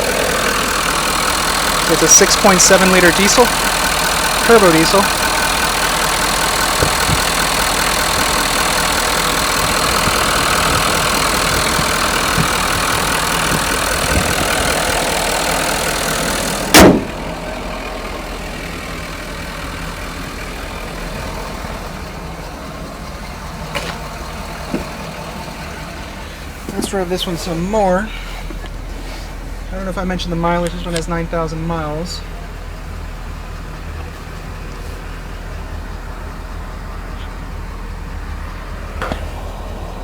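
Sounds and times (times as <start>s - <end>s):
diesel engine idling: 0.0s - 40.0s
loud thump: 16.7s - 17.4s.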